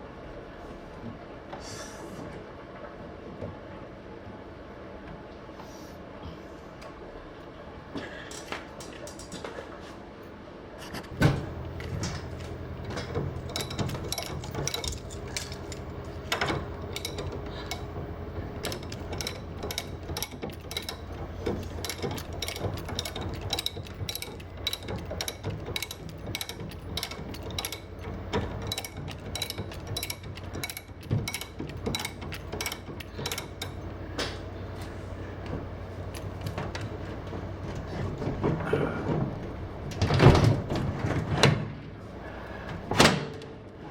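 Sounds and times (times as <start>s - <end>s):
steady low hum: 11.0s - 39.9s
jack ratchet clicking: 11.4s - 34.3s.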